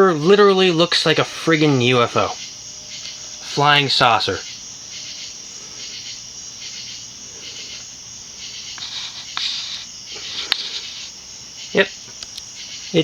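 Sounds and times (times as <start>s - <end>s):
insects chirring: 0.0s - 13.0s
faint clicks: 10.2s - 11.1s, 12.1s - 12.5s.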